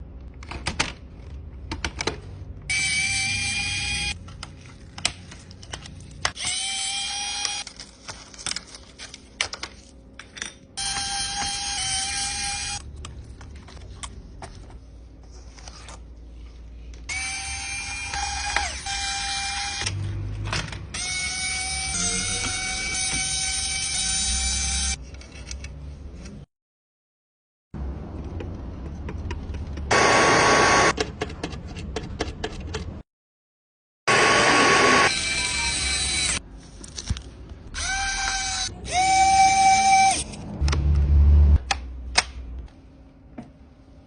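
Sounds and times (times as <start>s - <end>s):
small electric motor bursts: 34.1s - 36.4s.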